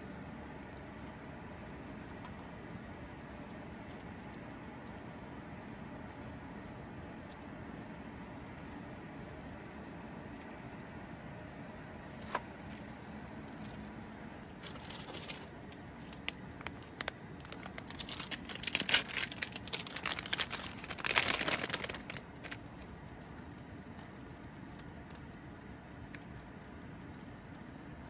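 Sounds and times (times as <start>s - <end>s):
crinkling and rustling: 12.1s - 12.9s, 13.5s - 24.2s.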